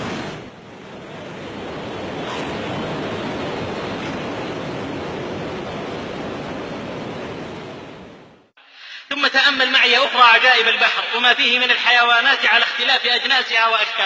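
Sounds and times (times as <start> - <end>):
ocean waves washing: 0.0 - 8.5.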